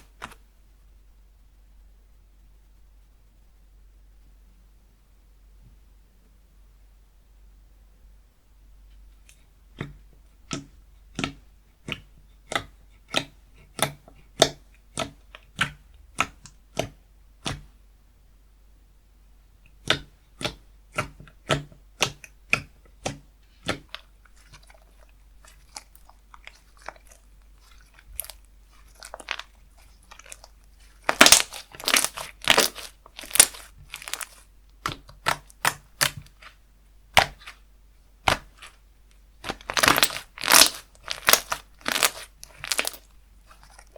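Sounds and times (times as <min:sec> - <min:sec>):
slime crunching squishes: 0:09.7 - 0:17.7, 0:19.7 - 0:43.9
slime crackling: 0:19.8 - 0:37.6, 0:38.2 - 0:38.8, 0:39.4 - 0:43.9
slime popping and clicking: 0:30.1 - 0:36.3, 0:39.4 - 0:43.1.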